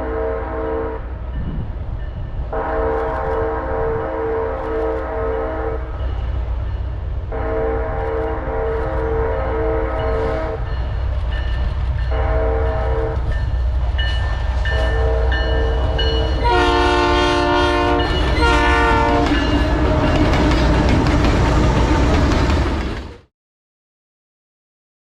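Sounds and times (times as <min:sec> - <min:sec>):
locomotive air horn blasts: 0:00.0 - 0:01.1, 0:02.5 - 0:06.0, 0:07.3 - 0:10.7, 0:12.1 - 0:13.3, 0:14.6 - 0:20.1
train wheel noise: 0:00.0 - 0:23.3
locomotive engine rumble: 0:01.0 - 0:23.2.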